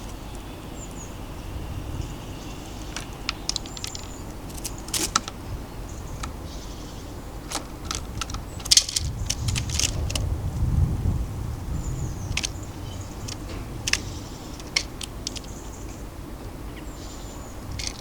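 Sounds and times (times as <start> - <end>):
birds pecking at feeder: 0.0 - 10.7, 11.6 - 18.0
low rumble: 9.0 - 14.3.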